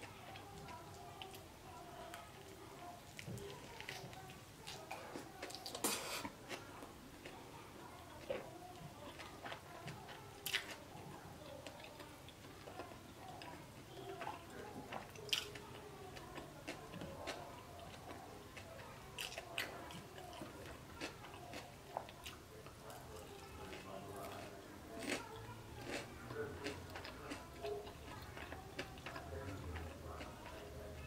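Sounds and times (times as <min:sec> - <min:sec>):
person chewing: 0:03.1 - 0:07.4, 0:08.2 - 0:10.8, 0:14.1 - 0:30.7.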